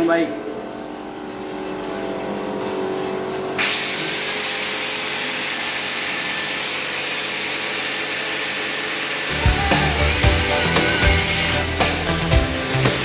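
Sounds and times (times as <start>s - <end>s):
angle grinder grinding steel: 3.6s - 13.0s.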